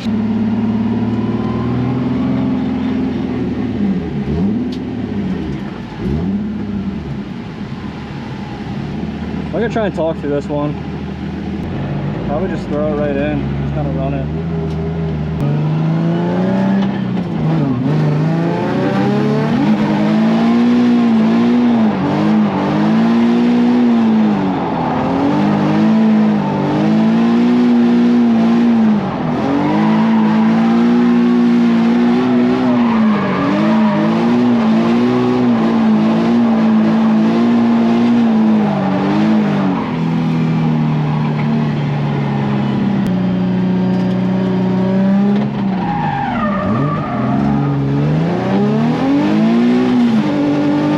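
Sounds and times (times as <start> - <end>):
car engine at high revs: 0.0 - 50.9
tyres squealing: 23.4 - 39.0.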